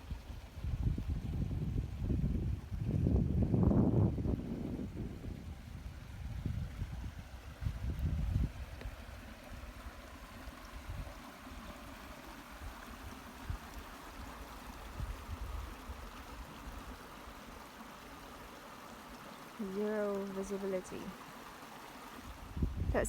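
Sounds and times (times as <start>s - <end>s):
wind gusting against microphone: 0.0s - 10.0s, 14.8s - 16.8s, 22.3s - 23.0s
water hiss: 7.9s - 23.0s.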